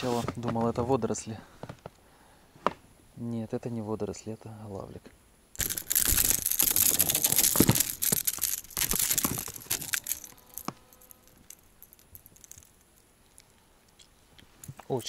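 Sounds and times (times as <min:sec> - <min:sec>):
rustling and rattling handling noise: 0:05.6 - 0:15.0.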